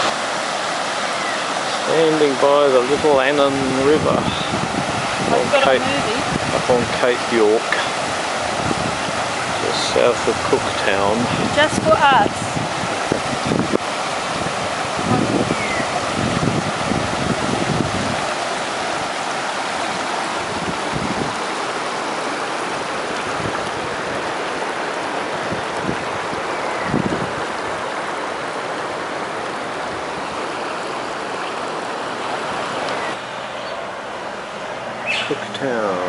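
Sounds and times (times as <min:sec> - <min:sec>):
river flowing: 0:00.0 - 0:36.0
wind thumps on microphone: 0:03.9 - 0:07.0, 0:07.8 - 0:19.1, 0:20.4 - 0:21.4, 0:23.1 - 0:24.4, 0:25.1 - 0:27.9.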